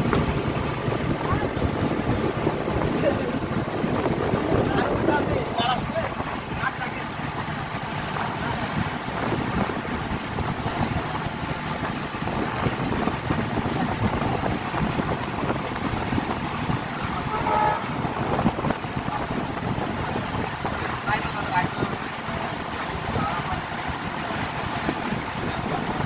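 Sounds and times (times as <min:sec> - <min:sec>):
train rumbling on track: 0:00.0 - 0:26.0
train horn toot: 0:17.2 - 0:18.0.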